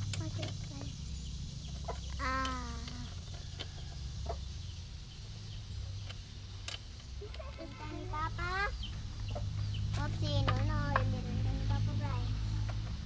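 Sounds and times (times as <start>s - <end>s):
steady low hum: 0.0s - 13.0s
sharp clicks and knocks: 5.9s - 7.5s, 8.8s - 11.2s.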